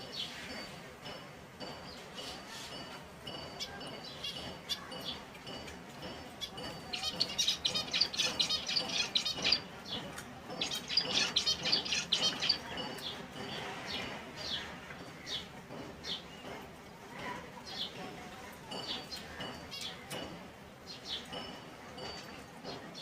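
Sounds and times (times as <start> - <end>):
finches chirping: 6.4 - 16.5.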